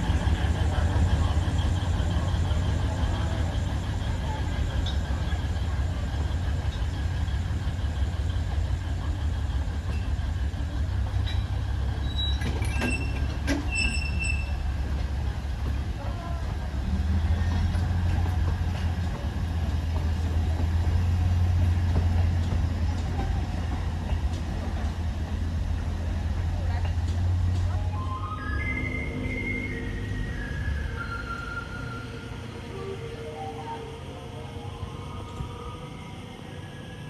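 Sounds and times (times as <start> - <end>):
diesel locomotive droning: 0.0 - 37.0
metallic squeals and clicks: 11.2 - 15.0.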